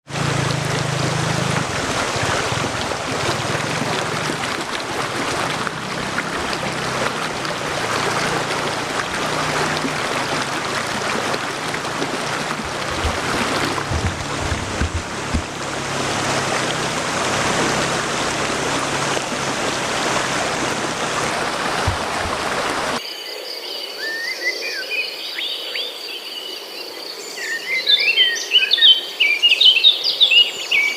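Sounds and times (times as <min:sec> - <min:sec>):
steady rushing noise: 0:00.0 - 0:23.0.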